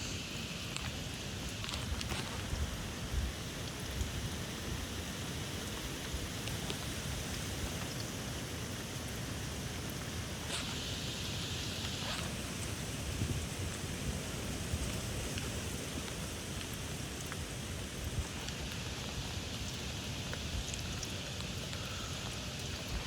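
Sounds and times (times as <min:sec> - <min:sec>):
heavy rain hissing: 0:00.0 - 0:23.0
wind buffeting microphone: 0:12.3 - 0:16.0.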